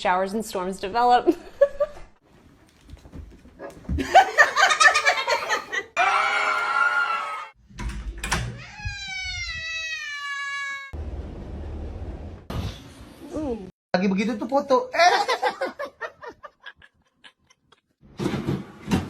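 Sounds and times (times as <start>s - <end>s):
long high-pitched cries: 8.6s - 11.0s.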